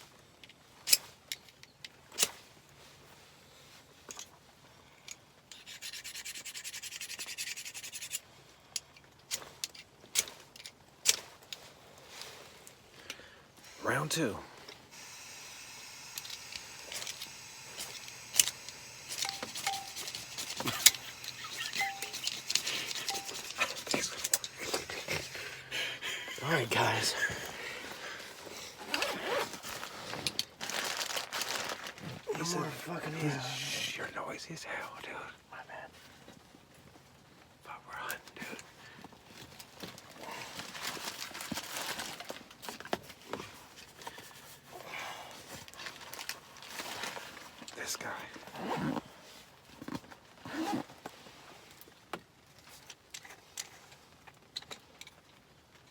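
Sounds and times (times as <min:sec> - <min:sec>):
gear rustling and handling: 0:08.1 - 0:33.6, 0:38.2 - 0:55.9
metallic rattling of cooking gear: 0:16.1 - 0:25.8
short squeaks: 0:19.2 - 0:24.2.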